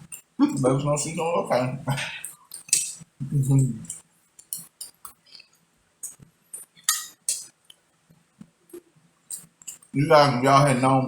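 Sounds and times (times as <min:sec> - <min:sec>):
cutlery clinking on dishes: 0:02.5 - 0:03.0, 0:06.1 - 0:07.5.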